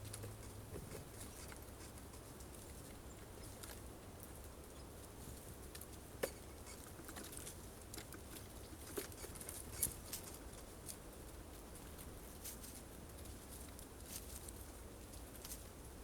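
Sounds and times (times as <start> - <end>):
birds pecking at seeds: 0.0 - 16.0.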